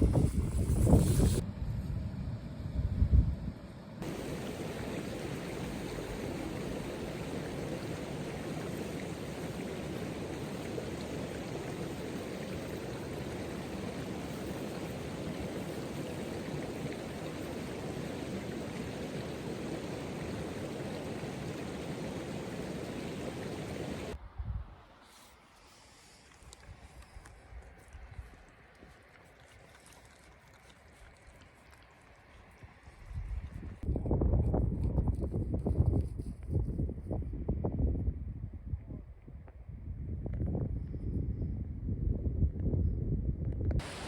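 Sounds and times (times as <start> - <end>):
running water rushing: 4.0 - 24.2, 43.8 - 44.0.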